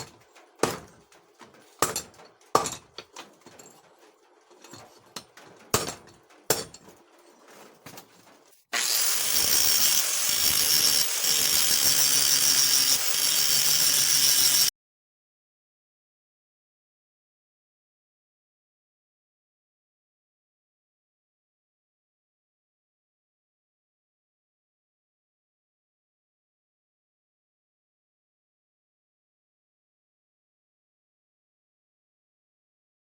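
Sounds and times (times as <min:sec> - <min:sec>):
power tool hissing: 0:08.8 - 0:14.7.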